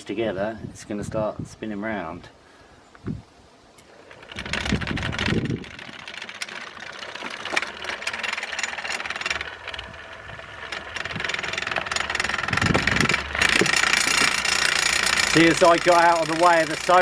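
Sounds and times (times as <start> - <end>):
rattly vibration: 3.8 - 17.0
electric motor running: 3.9 - 17.0.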